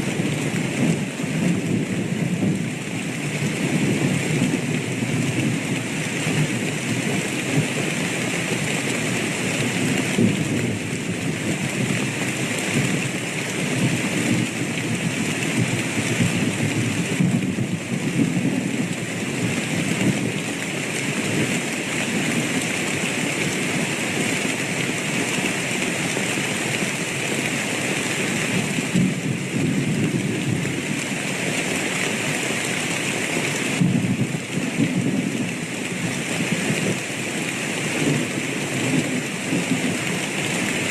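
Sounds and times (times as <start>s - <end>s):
steady rain falling: 0.0s - 40.9s
low thunder rumbling: 13.6s - 20.4s.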